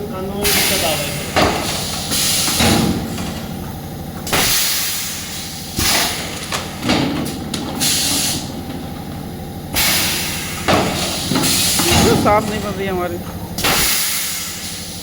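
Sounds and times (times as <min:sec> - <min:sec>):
machine mechanical hum: 0:00.0 - 0:15.0
compressed air blasts hissing: 0:00.4 - 0:02.9, 0:04.2 - 0:06.4, 0:07.8 - 0:08.6, 0:09.6 - 0:13.0, 0:13.6 - 0:15.0.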